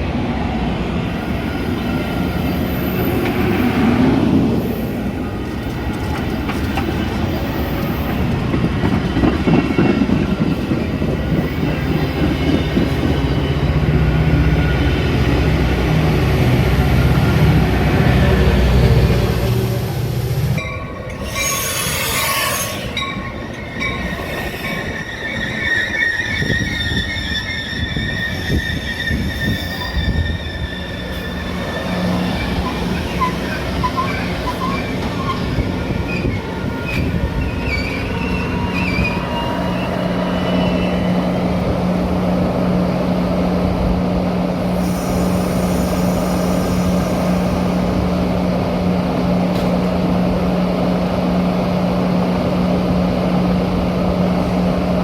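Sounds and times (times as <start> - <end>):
train moving on rails: 0.0 - 55.0
high wheel squeal: 20.6 - 41.6, 44.8 - 48.0
hiss: 44.7 - 48.0.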